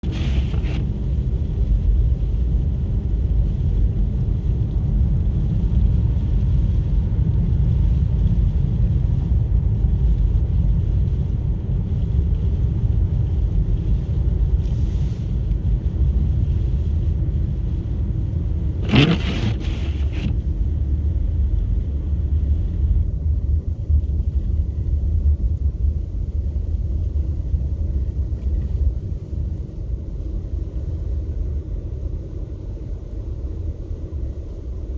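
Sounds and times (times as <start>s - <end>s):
vehicle driving rumble: 0.0s - 2.4s, 11.9s - 24.8s.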